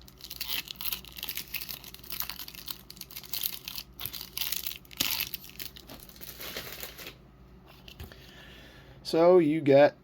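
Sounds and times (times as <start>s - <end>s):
packaging crinkling: 0.0s - 7.2s
packaging tearing: 0.0s - 7.2s.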